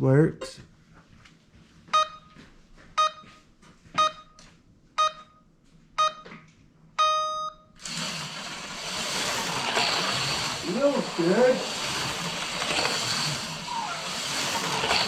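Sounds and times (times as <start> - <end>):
electronic countdown beeps: 1.9 - 2.4, 3.0 - 3.4, 4.0 - 4.4, 5.0 - 6.3, 7.0 - 7.8
slot car motor whirring: 7.8 - 15.0.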